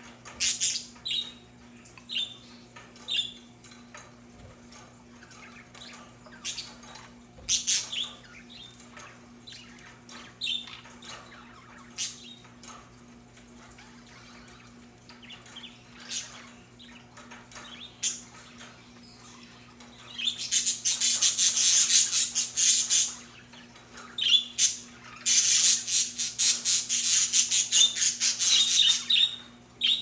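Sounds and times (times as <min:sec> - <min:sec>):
budgerigars chirping: 0:00.3 - 0:01.4, 0:05.2 - 0:12.5, 0:13.8 - 0:30.0.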